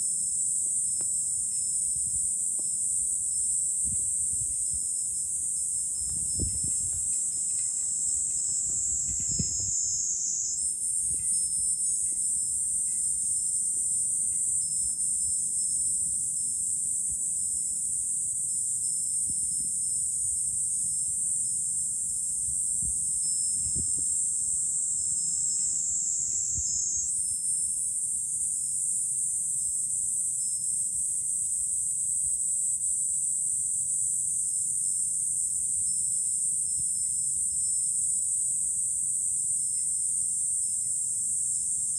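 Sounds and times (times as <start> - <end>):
cicadas singing: 0.1 - 18.4, 21.4 - 31.6
wind rumble on microphone: 1.8 - 12.2, 22.3 - 27.1.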